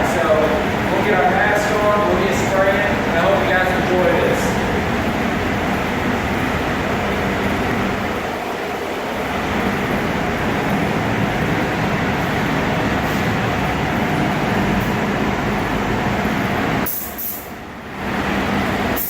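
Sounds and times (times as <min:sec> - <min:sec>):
spray booth air rushing: 0:16.8 - 0:17.6.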